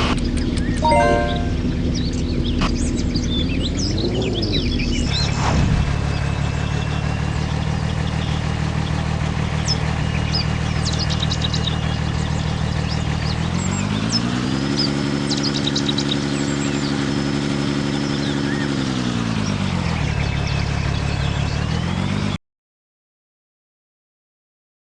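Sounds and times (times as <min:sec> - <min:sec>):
vehicle engine idling and revving: 0:00.0 - 0:00.8, 0:01.5 - 0:22.4
birds chirping: 0:06.0 - 0:22.3.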